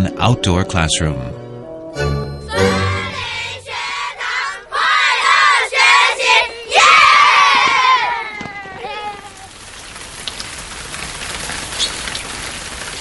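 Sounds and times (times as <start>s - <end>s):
children shouting together: 4.1s - 9.5s.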